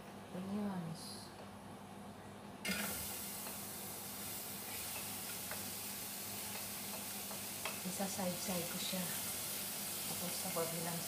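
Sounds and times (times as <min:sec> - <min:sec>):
oil sizzling in a pot: 0:02.6 - 0:11.0.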